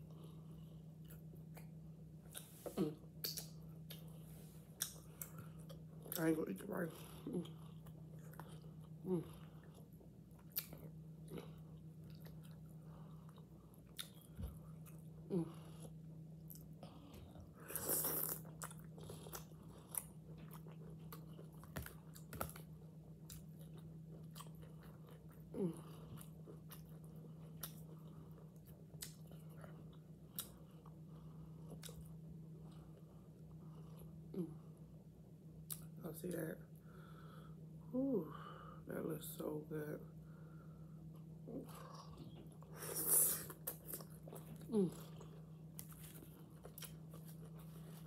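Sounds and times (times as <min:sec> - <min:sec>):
chewing soft vegetables: 0:00.0 - 0:35.0, 0:40.2 - 0:48.0
low hum: 0:00.0 - 0:48.0
wet mouth clicks: 0:03.2 - 0:04.0.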